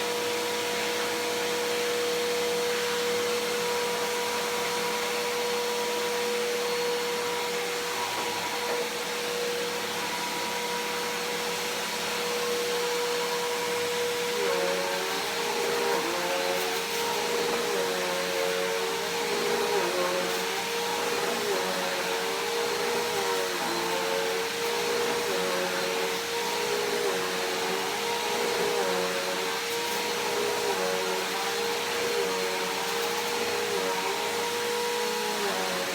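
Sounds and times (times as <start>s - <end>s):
vacuum cleaner running: 0.0s - 35.9s.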